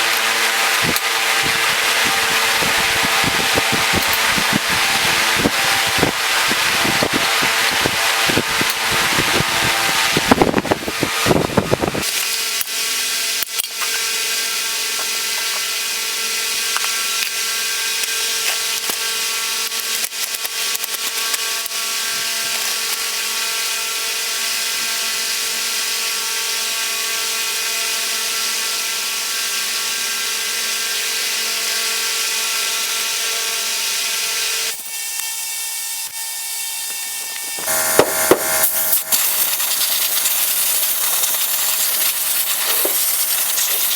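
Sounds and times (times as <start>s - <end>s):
power tool running: 0.0s - 13.1s, 27.6s - 43.9s.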